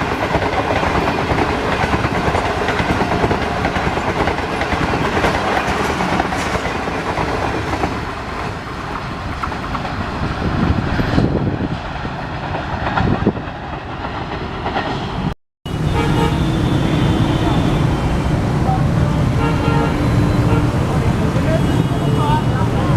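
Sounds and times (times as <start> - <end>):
train wheels clattering over rails: 0.0 - 15.3.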